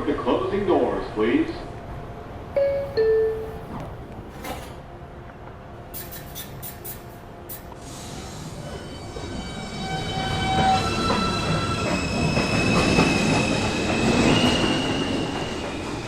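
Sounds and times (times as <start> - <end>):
subway train rumbling: 0.0 - 16.0
subway wheels squealing: 5.8 - 16.0.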